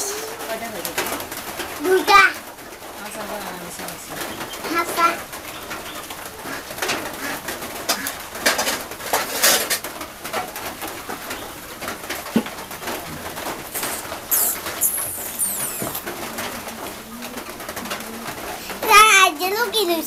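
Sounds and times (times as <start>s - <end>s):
birds calling: 0.0s - 8.4s, 10.5s - 19.1s
quick high chirps: 13.7s - 16.1s
short noises: 13.7s - 16.5s.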